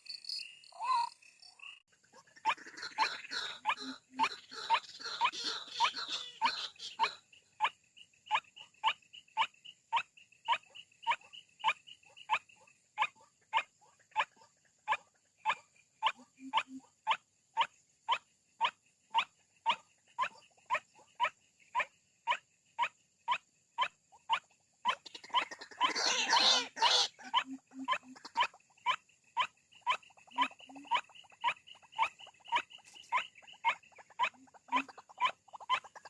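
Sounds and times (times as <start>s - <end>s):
waterhen call: 2.1s - 7.2s, 24.9s - 28.6s, 30.0s - 36.0s.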